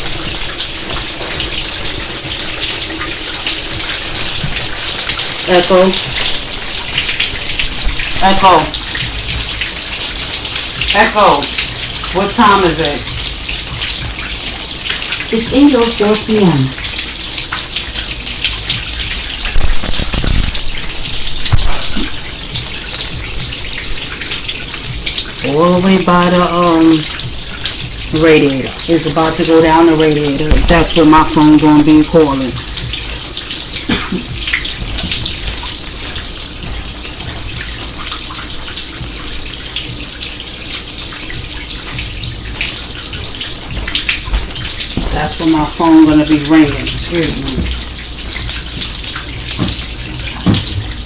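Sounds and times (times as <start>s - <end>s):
water splashing from sink: 0.0s - 51.0s
dull thumps: 41.4s - 45.4s, 46.9s - 51.0s.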